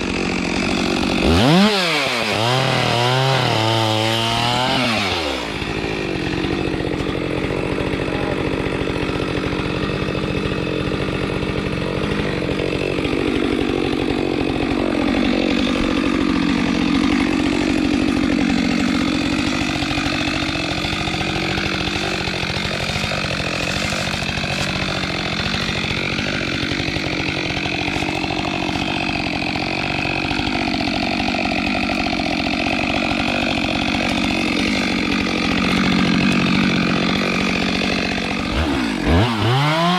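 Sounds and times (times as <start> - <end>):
chainsaw cutting timber: 0.0 - 39.9.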